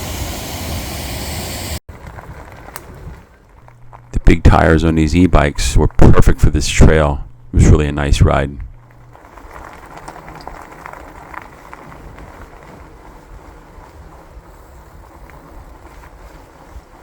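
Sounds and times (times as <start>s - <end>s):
bike tyres rumbling on trail: 1.9s - 7.1s, 7.8s - 17.0s
small clicks and rattles: 8.8s - 13.0s.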